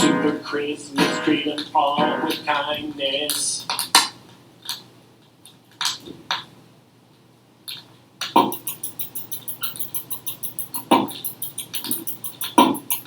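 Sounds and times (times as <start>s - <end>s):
beatboxing beat: 0.0s - 3.6s, 8.3s - 13.0s.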